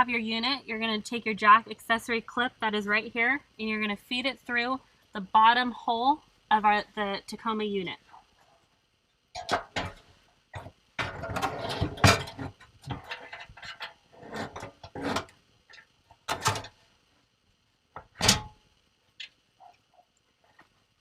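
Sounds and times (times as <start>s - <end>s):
steel box clunking and rattling: 9.4s - 10.0s, 10.6s - 15.3s, 16.3s - 16.8s, 18.0s - 18.6s.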